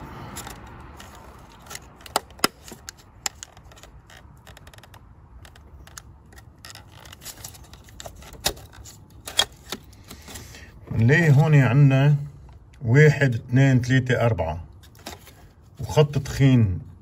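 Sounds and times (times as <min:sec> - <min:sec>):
plastic connector clicking and rattling: 0:00.4 - 0:10.2.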